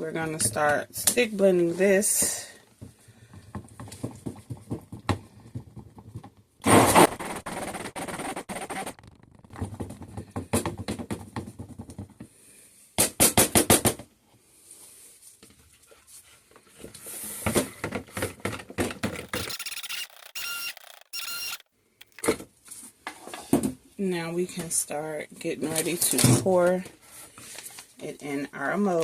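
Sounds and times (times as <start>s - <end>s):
stick blender whirring: 19.0s - 22.3s.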